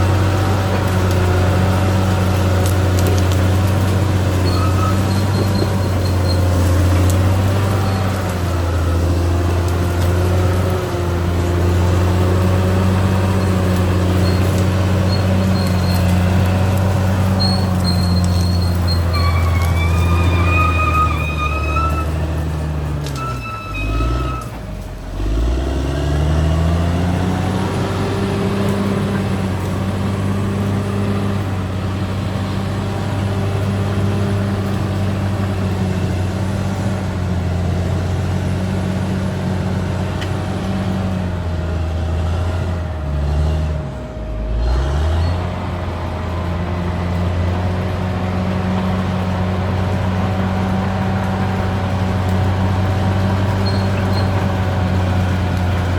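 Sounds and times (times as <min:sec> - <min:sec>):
bulldozer diesel engine running: 0:00.0 - 0:55.9
thin high squeal: 0:04.4 - 0:06.6, 0:17.2 - 0:22.3, 0:23.1 - 0:24.6, 0:53.6 - 0:54.4.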